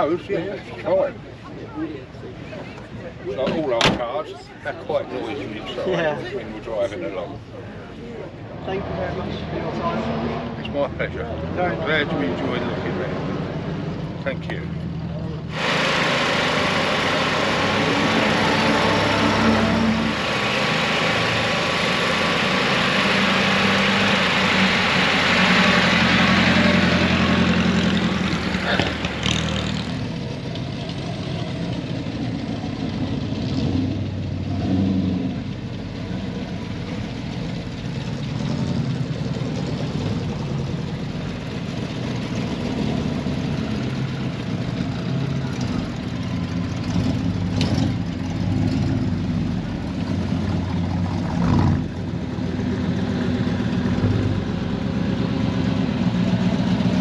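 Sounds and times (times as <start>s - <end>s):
car engine running: 14.0s - 57.0s.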